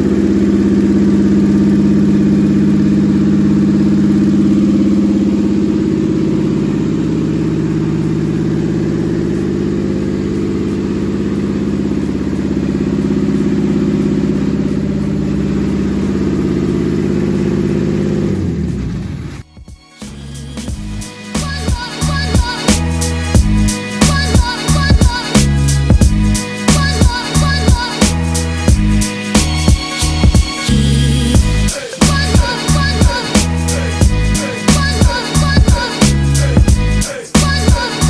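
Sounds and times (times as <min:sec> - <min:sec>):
engine running on test stand: 0:00.0 - 0:19.4.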